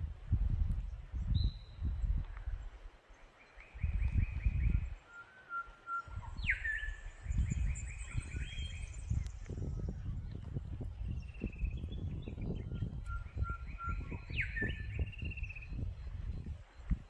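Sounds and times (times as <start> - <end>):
low gusty rumbles: 0.0 - 2.6, 7.2 - 17.0
wild birds singing: 0.8 - 17.0.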